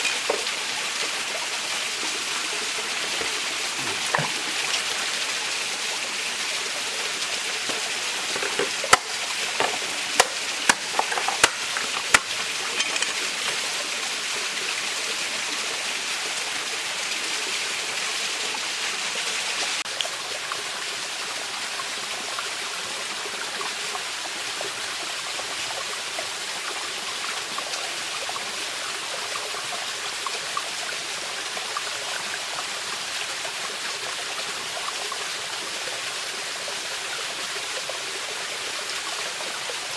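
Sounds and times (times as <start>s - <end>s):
stream running over rocks: 0.0s - 39.9s
sharp knocks: 7.7s - 13.6s.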